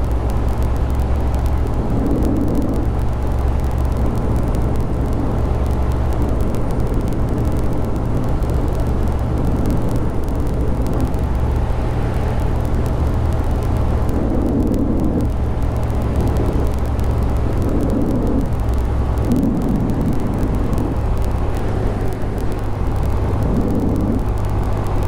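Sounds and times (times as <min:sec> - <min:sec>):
motorcycle engine running steadily: 0:00.0 - 0:25.0.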